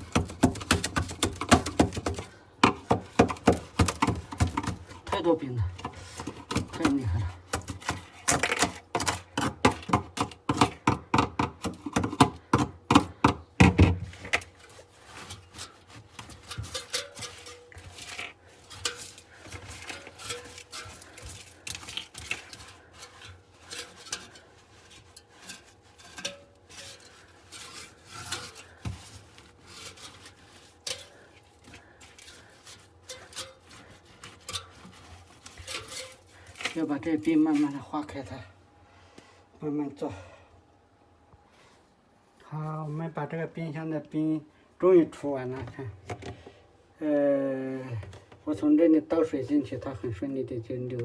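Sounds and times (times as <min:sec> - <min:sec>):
ice being chipped and knocked: 0:00.0 - 0:05.2, 0:05.9 - 0:14.4.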